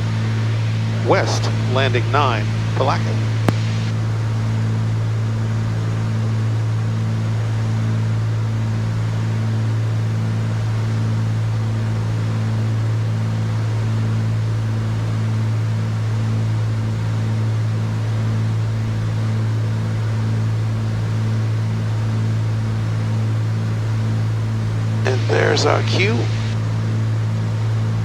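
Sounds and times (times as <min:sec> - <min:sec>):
propeller engines droning: 0:22.8 - 0:28.0.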